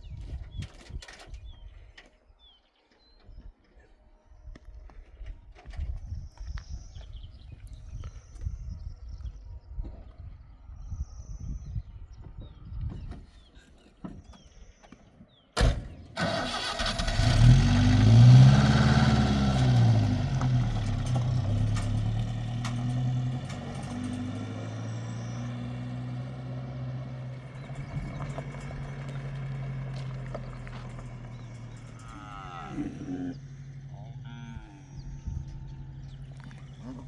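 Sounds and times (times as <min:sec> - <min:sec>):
engine starting and revving: 0:15.6 - 0:34.2.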